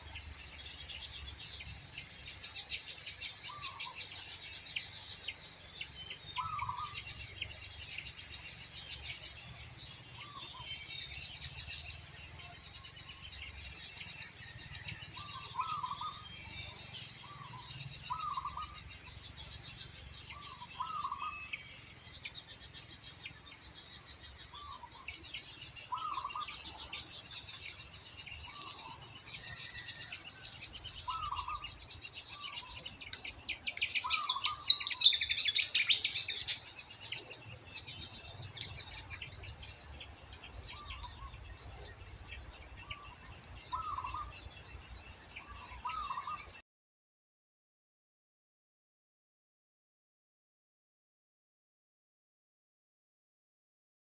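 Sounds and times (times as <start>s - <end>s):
forest birds chirping: 0.0s - 46.6s.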